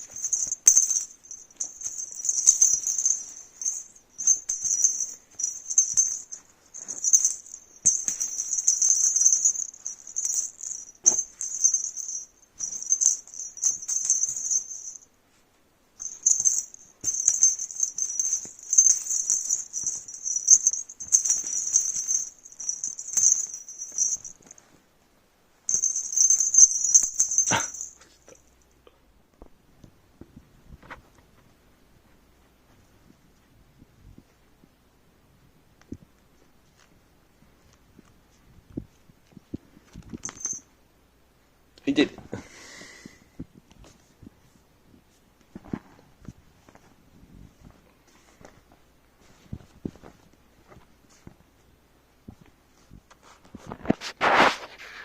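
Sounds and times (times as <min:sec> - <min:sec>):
jingling rattle toy shaken: 0:00.0 - 0:15.1, 0:16.0 - 0:24.7, 0:25.7 - 0:28.4, 0:39.9 - 0:40.6.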